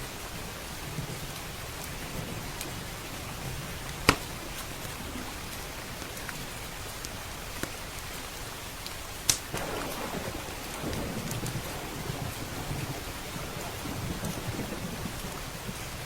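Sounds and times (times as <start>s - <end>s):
steady rain: 0.0s - 16.0s
wood fire crackling and popping: 3.9s - 16.0s
low rumble of thunder: 9.5s - 16.0s.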